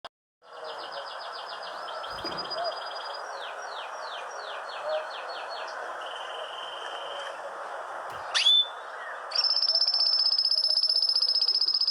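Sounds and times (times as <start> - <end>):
songbird singing: 0.4 - 11.9.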